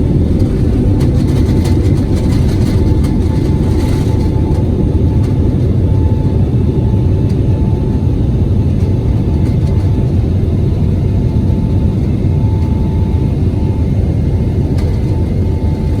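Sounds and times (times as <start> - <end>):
faint steady whine: 0.0 - 16.0
jet engine and airflow rumble: 0.0 - 16.0.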